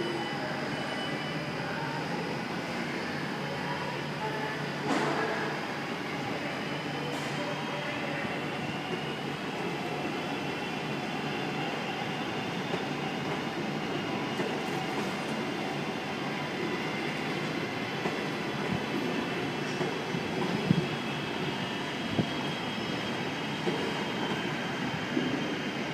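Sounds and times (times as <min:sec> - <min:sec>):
train running on rails: 0:00.0 - 0:25.9.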